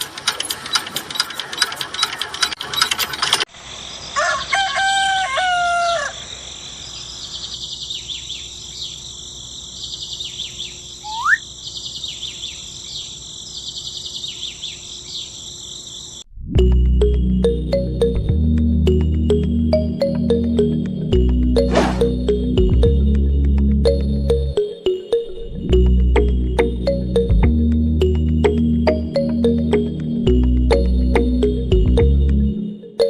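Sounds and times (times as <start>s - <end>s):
rapid clicking: 0.0s - 3.5s
rooster crowing: 4.1s - 6.4s
small birds chirping: 6.2s - 16.3s
rising bird whistle: 11.0s - 11.5s.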